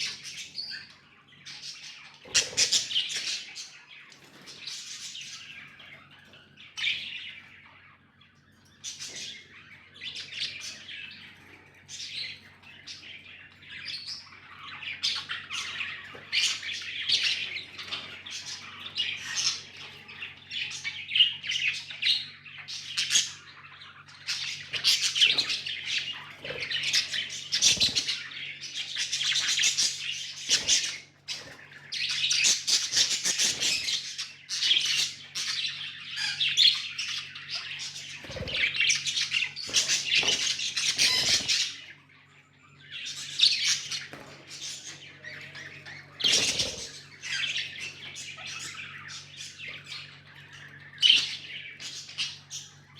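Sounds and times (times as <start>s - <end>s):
budgerigars chirping and squawking: 0.0s - 52.9s
faint low hum: 0.0s - 52.9s.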